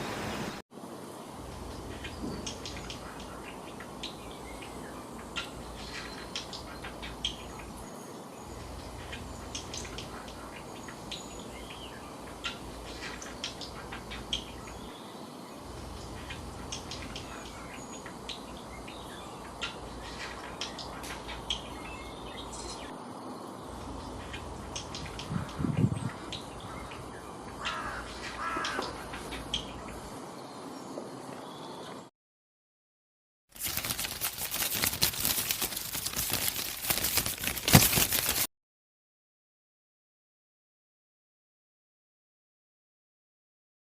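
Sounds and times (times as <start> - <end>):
steady background hiss: 0.0 - 31.8
birds chirping: 1.4 - 32.1.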